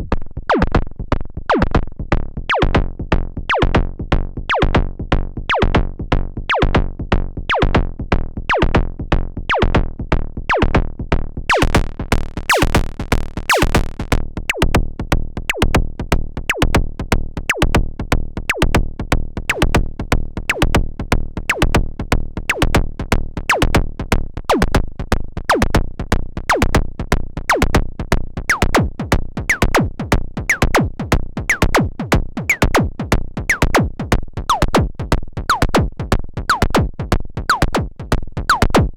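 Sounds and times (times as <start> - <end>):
synthesizer drum pattern: 11.5 - 14.8, 15.5 - 15.8, 16.5 - 16.7, 17.5 - 17.7, 18.5 - 18.7, 19.5 - 19.8, 20.5 - 20.8, 21.5 - 21.8, 22.5 - 22.8, 23.5 - 23.7, 27.5 - 27.8, 28.5 - 38.9.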